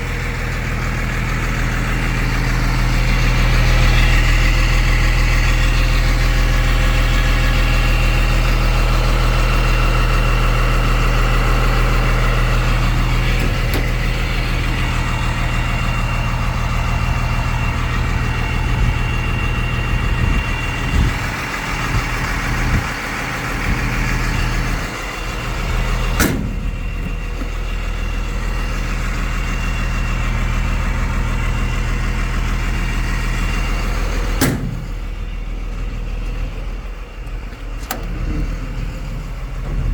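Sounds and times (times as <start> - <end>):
diesel engine idling: 0.0 - 39.9
sharp knocks: 26.2 - 27.5.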